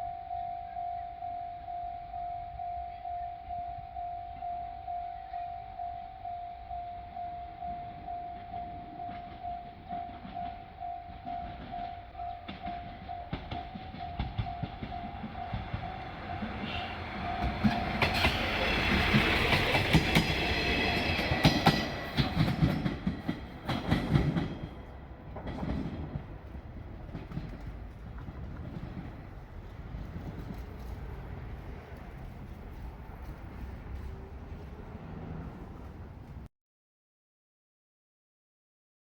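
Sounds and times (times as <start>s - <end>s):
level crossing warning bell: 0.0s - 24.9s
train wheels clacking over rail joints: 9.0s - 36.5s.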